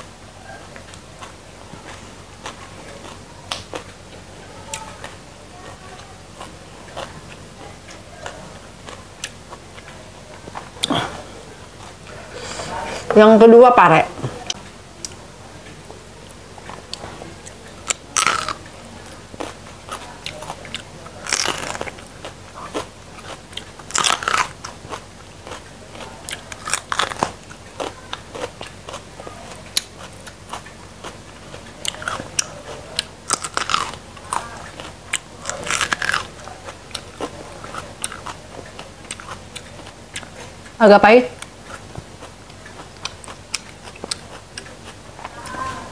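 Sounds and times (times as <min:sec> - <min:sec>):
chewing clicks: 0:14.5 - 0:40.8, 0:41.4 - 0:45.6
crisp crunches of biting: 0:17.9 - 0:18.6, 0:20.3 - 0:25.7, 0:26.3 - 0:29.0, 0:31.8 - 0:38.4.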